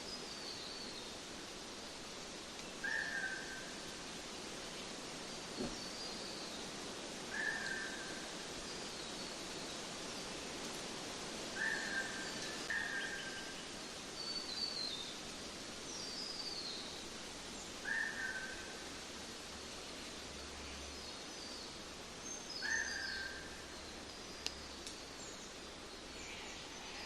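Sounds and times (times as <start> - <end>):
outdoor background hiss: 0.0 - 27.0
wild birds calling: 2.7 - 4.0, 5.4 - 8.6, 11.4 - 15.0, 17.6 - 19.0, 22.4 - 27.0.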